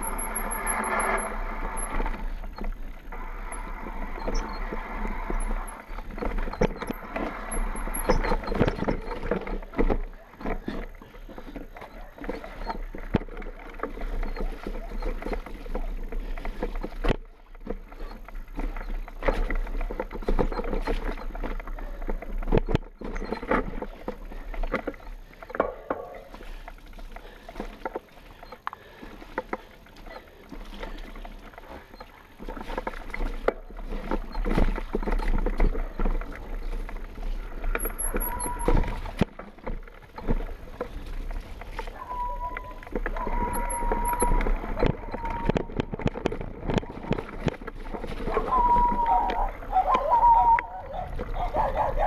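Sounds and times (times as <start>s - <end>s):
bike knocking and rattling: 0.0s - 52.0s
bike riding on rough trail: 0.0s - 52.0s
brief squeal: 42.0s - 45.5s.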